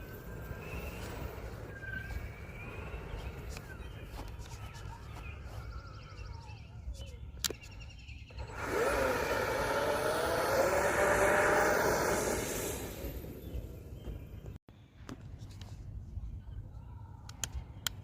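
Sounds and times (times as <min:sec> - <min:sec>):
electric fans whining: 0:00.0 - 0:05.8, 0:08.2 - 0:14.6
bird chirps: 0:00.0 - 0:08.6, 0:13.0 - 0:14.6.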